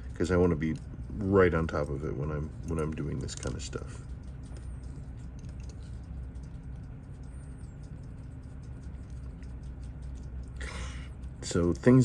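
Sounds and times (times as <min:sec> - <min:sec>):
steady low hum: 0:00.0 - 0:12.0
small metal parts clicking: 0:02.7 - 0:04.6.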